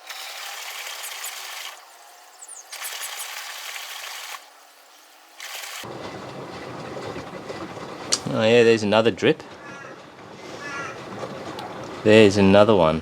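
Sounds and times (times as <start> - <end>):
washing machine water splashing: 2.6 - 8.5.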